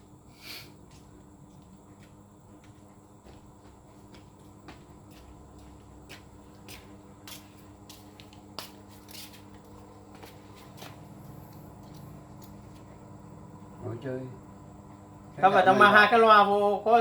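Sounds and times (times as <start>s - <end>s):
steady low hum: 0.0s - 17.0s
small clicks of fan parts: 5.6s - 13.0s.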